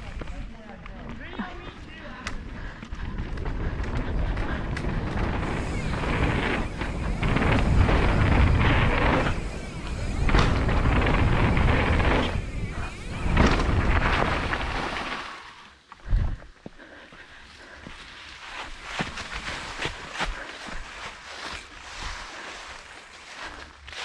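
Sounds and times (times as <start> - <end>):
wind buffeting microphone: 0.0 - 15.2
mountain bike rumble and rattle: 0.0 - 24.0.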